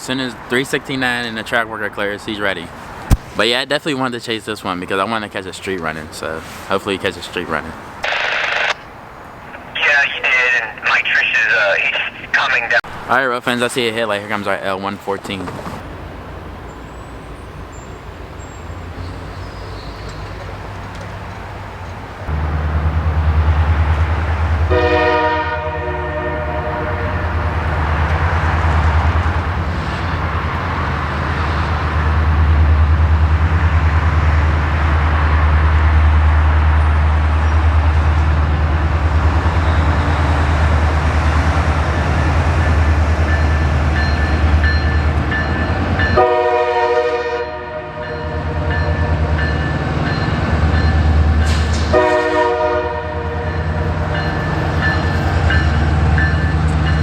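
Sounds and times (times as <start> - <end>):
locomotive engine rumble: 5.8 - 13.1, 15.4 - 46.5
air horn blasts: 24.7 - 27.2, 46.2 - 48.7, 51.9 - 53.5.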